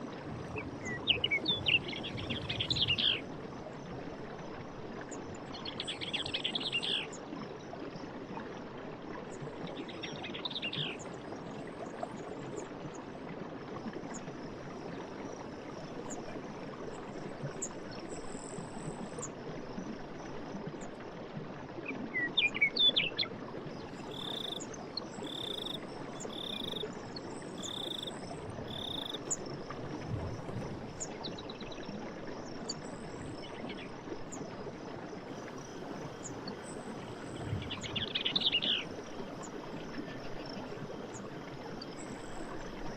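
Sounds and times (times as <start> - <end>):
frog calls: 23.9 - 26.8, 27.5 - 29.4
insect trill: 24.0 - 24.6, 25.2 - 26.9, 27.5 - 29.4.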